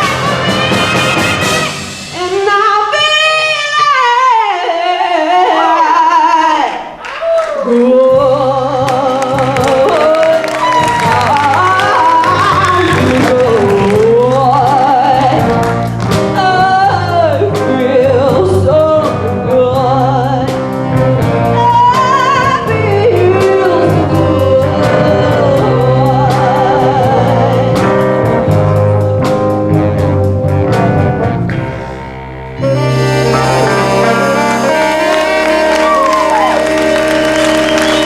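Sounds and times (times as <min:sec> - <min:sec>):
swing band playing: 0:00.0 - 0:04.6, 0:07.8 - 0:38.0.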